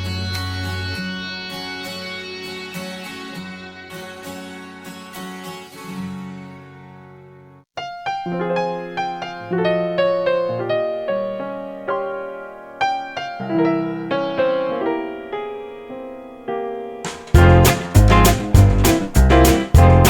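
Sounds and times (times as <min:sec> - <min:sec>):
instrumental piano: 0:07.8 - 0:20.0
song ending: 0:17.1 - 0:20.0.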